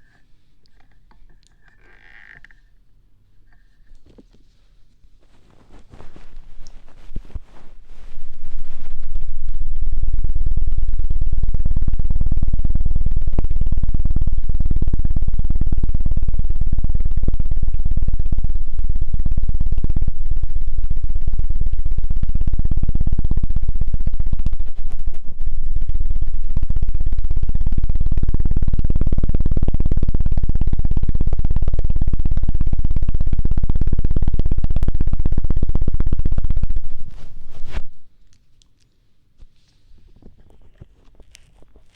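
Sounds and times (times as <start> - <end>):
microphone being rubbed rapidly: 3.6 - 9.5, 24.4 - 25.6, 36.9 - 38.1.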